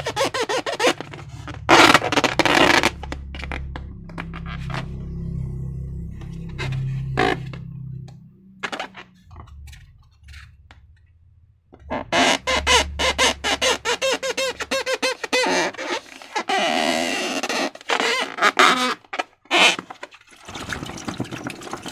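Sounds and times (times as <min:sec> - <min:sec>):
air bubbles popping: 0:20.2 - 0:21.9.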